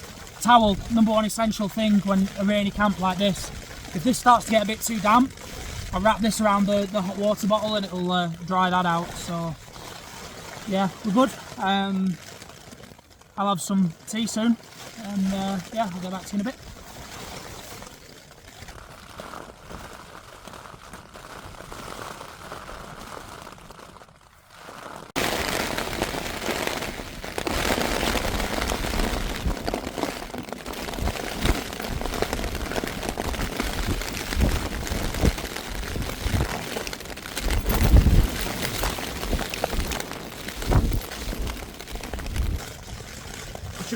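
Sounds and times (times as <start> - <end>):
heavy rain on a tent: 0.0 - 43.9
storm wind: 25.2 - 42.9
wind buffeting microphone: 37.4 - 42.7.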